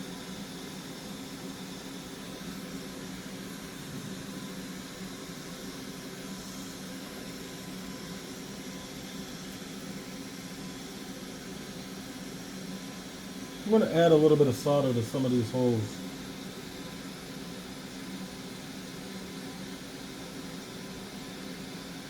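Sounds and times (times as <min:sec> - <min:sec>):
hot air blower hissing: 0:00.0 - 0:22.0
faint hum: 0:13.0 - 0:16.7.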